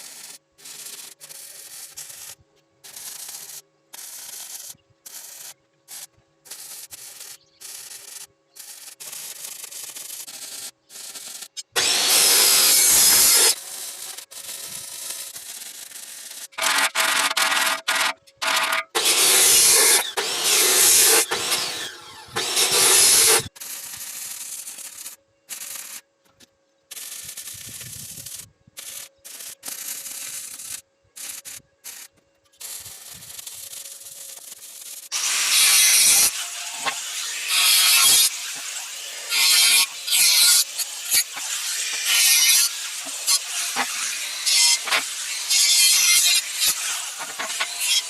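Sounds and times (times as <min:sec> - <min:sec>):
power sander grinding: 0:11.8 - 0:13.6, 0:18.5 - 0:23.5, 0:35.2 - 0:48.0.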